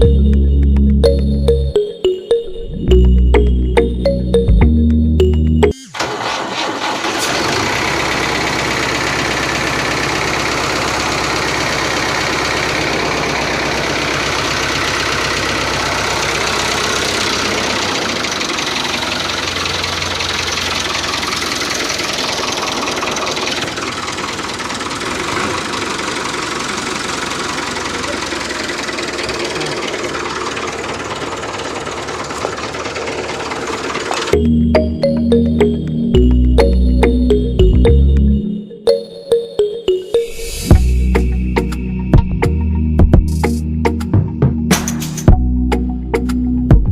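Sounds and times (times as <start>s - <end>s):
model tractor engine idling: 6.0s - 34.4s.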